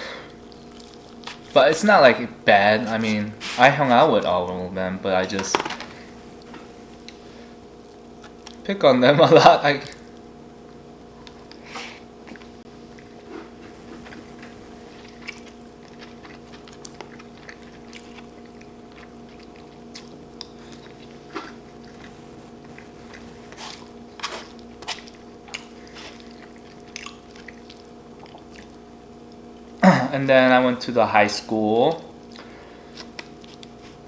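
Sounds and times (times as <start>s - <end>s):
steady low hum: 0.0s - 34.0s
chewing and biting: 0.3s - 1.6s, 11.2s - 29.8s, 32.2s - 34.0s.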